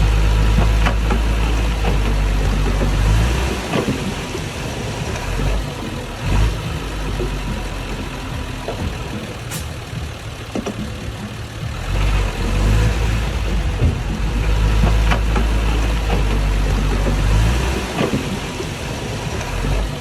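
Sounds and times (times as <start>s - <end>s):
heavy machinery diesel engine: 0.0s - 20.0s
sharp knocks and clanks: 0.0s - 20.0s.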